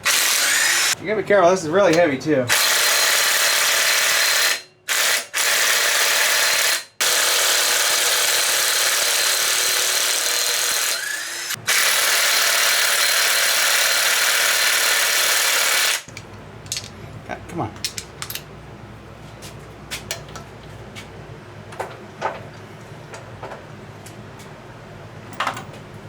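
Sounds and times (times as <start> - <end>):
power tool whirring: 0.0 - 1.0, 2.5 - 16.1.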